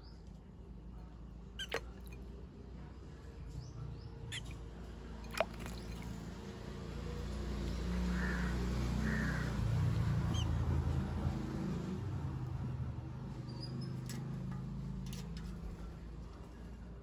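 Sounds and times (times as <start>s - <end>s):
harsh bird calls: 8.1s - 9.6s.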